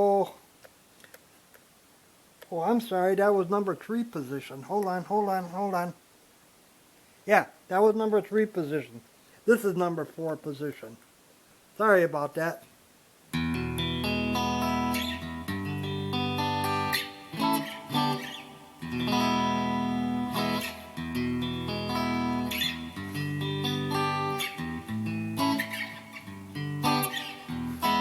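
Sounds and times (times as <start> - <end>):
electric guitar chords and notes: 13.3 - 28.0.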